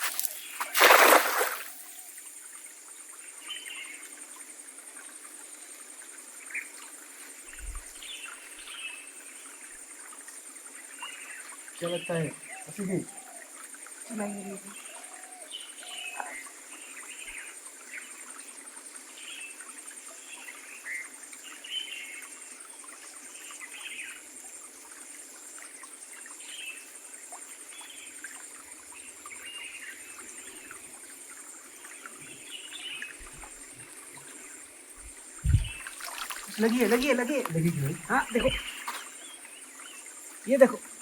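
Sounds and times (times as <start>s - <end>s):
faint trickling water: 0.0s - 41.0s
birds chirping: 11.8s - 13.5s, 31.9s - 40.9s.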